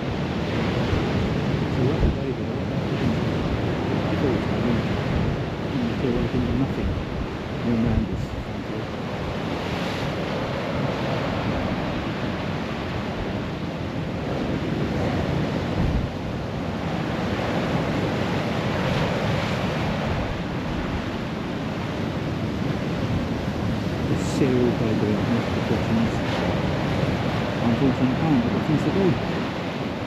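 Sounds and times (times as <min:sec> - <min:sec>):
sea surf washing onto shore: 0:00.0 - 0:30.0
wind buffeting microphone: 0:00.0 - 0:30.0.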